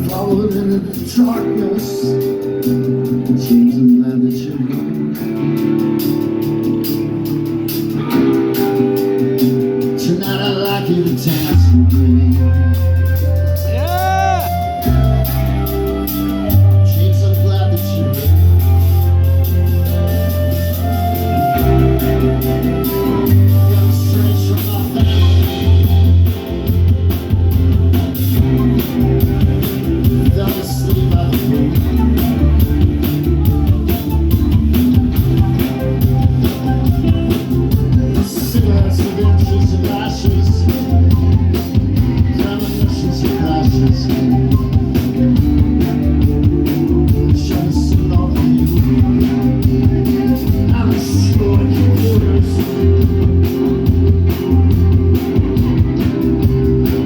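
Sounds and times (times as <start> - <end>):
rock band playing: 0.0 - 57.0
drum beat: 22.2 - 57.0.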